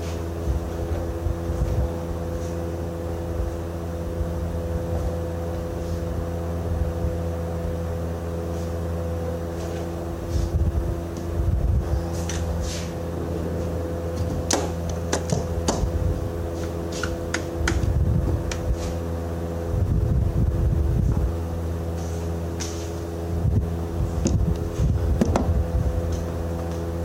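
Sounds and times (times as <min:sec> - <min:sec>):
machine humming: 0:00.0 - 0:27.0.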